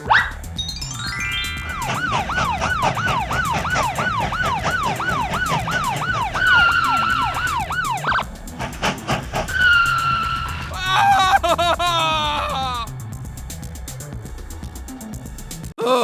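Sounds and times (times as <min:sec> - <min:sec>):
police siren wailing and yelping: 0:01.2 - 0:12.8.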